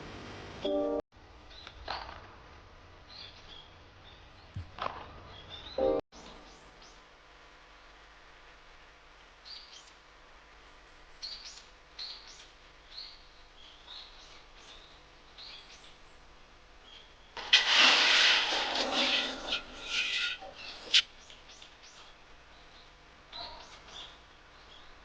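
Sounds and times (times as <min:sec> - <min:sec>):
small birds chirping: 0:09.4 - 0:10.0, 0:11.2 - 0:17.4, 0:19.0 - 0:25.0
loud rough sound: 0:17.4 - 0:20.8.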